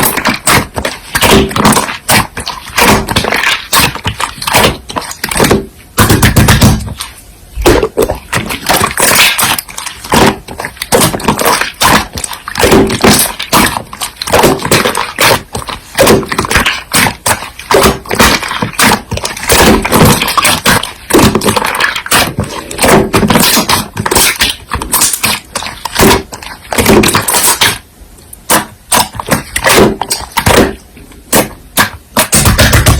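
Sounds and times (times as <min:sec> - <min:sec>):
slime clicking and popping: 0:00.0 - 0:07.0.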